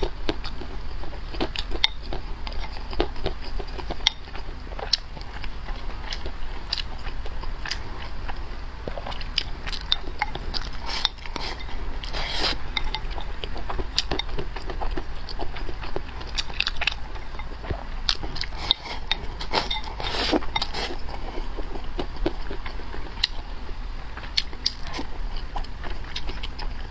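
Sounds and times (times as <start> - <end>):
person chewing: 0.0 - 26.9
steady low hum: 0.0 - 26.9
slurping: 10.7 - 13.0, 18.4 - 21.2.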